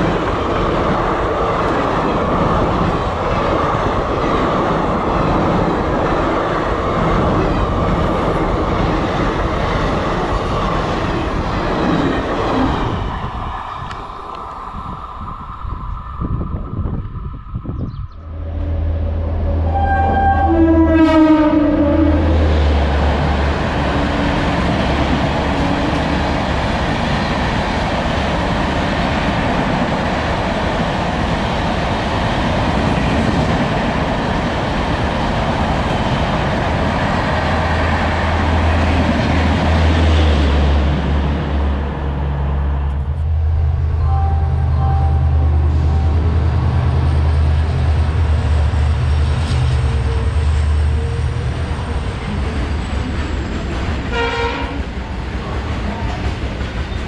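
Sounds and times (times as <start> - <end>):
train wheel and air rush: 0.0 - 19.9
diesel locomotive engine rumble: 0.0 - 57.0
train horn: 18.3 - 22.8, 54.1 - 54.9.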